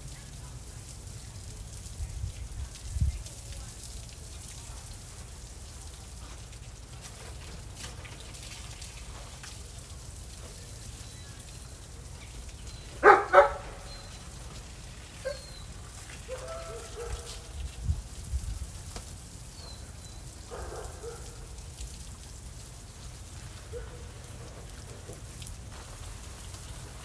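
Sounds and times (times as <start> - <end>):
dog barking: 13.0 - 14.1, 15.2 - 15.6, 16.3 - 17.5, 20.5 - 21.5, 23.7 - 24.2.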